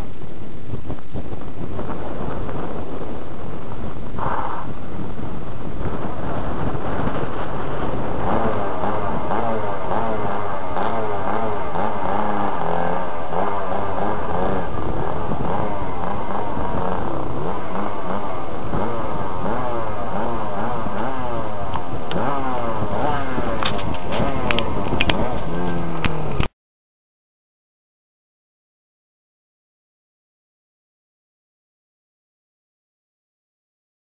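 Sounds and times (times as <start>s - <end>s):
model plane engine running: 1.9s - 26.5s.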